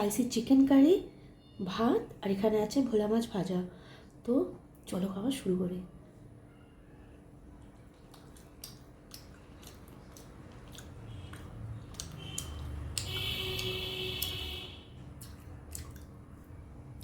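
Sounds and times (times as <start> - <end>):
squishing and chewing: 6.6 - 14.4, 15.0 - 17.0
small mouth clicks: 8.0 - 14.4, 15.2 - 16.2.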